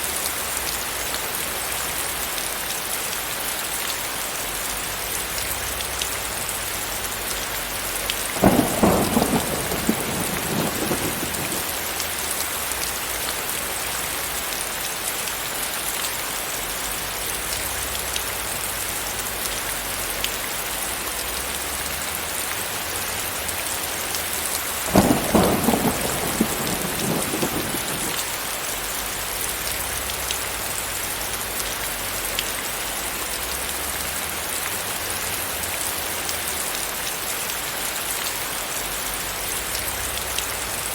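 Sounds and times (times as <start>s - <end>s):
heavy rain hissing: 4.2s - 40.9s
thunder claps rumbling: 8.3s - 12.2s, 24.9s - 28.4s.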